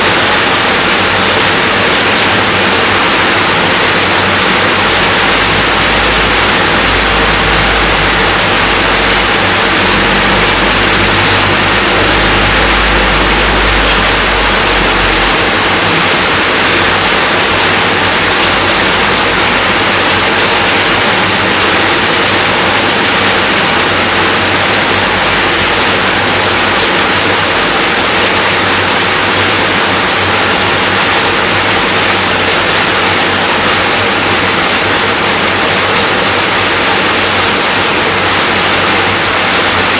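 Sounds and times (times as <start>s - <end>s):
rain falling: 0.0s - 39.9s
low rumble: 4.9s - 17.6s.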